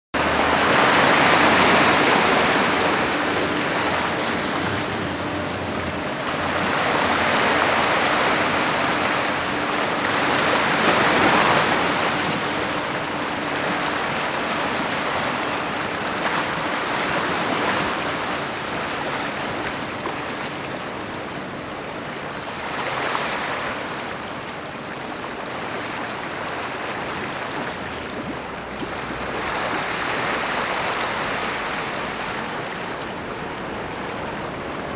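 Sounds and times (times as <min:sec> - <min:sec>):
surf waves crashing: 0:00.2 - 0:34.9.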